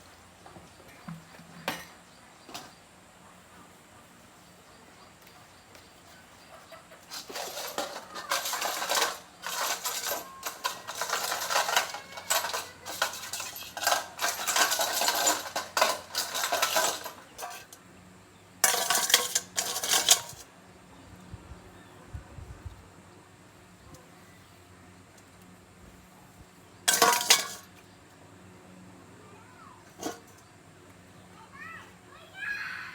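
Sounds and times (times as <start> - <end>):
metal tools clattering and scraping: 6.8 - 17.8, 18.6 - 20.5, 26.9 - 27.8, 29.8 - 30.5.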